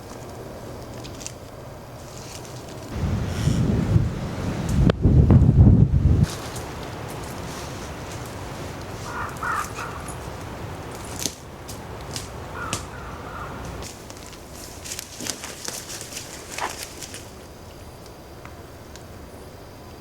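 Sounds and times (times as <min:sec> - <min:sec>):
light clicks and crackles: 0:00.0 - 0:02.9
background hiss: 0:00.0 - 0:20.0
crow cawing: 0:08.9 - 0:10.8, 0:12.3 - 0:13.8.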